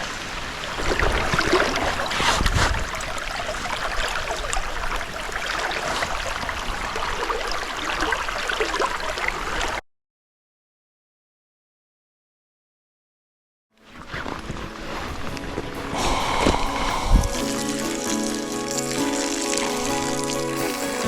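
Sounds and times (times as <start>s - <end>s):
stream water flowing: 0.0s - 9.8s, 14.3s - 21.0s
pouring rain: 14.7s - 21.0s.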